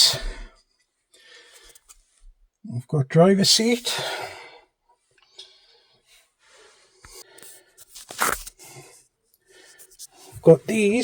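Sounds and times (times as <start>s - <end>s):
rustling and handling: 6.9s - 11.0s
scraping crunch: 7.1s - 8.8s.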